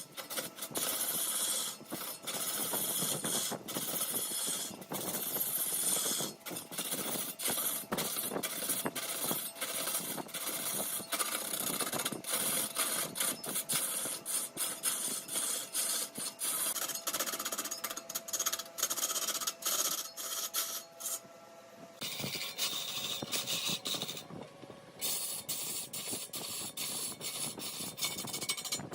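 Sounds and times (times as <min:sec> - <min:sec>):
lathe tool rasping wood: 0:00.0 - 0:21.2, 0:22.0 - 0:24.3, 0:25.0 - 0:28.9.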